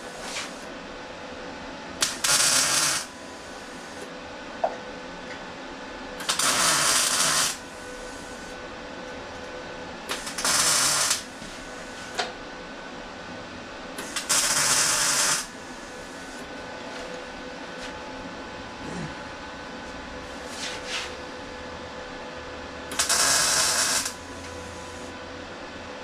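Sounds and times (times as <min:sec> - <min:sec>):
welding arc crackle and hiss: 0:00.0 - 0:00.7, 0:02.0 - 0:04.1, 0:06.2 - 0:08.6, 0:10.1 - 0:12.2, 0:14.0 - 0:16.5, 0:20.2 - 0:21.2, 0:22.9 - 0:25.1.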